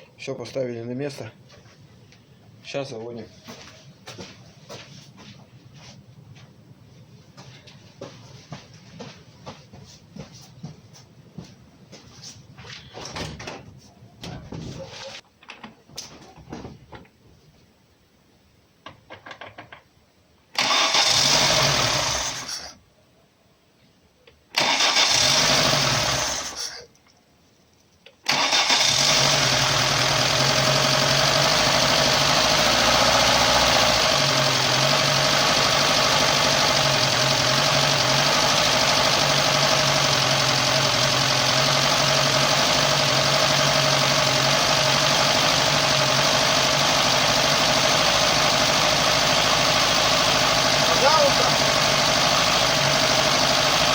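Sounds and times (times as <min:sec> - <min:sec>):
car engine starting and running: 0:20.6 - 0:22.7, 0:24.6 - 0:26.8, 0:28.3 - 0:53.9.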